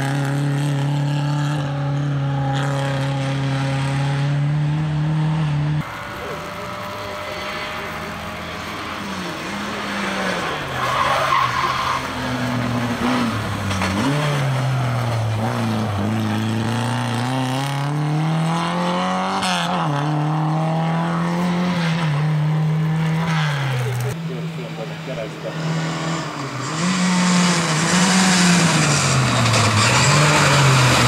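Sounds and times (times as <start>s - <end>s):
tyres squealing: 9.0s - 16.7s
car engine revving hard: 12.0s - 31.0s.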